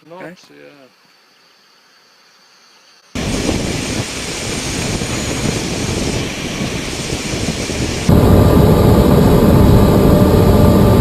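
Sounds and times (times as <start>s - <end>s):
jet engines rushing: 3.2s - 11.0s.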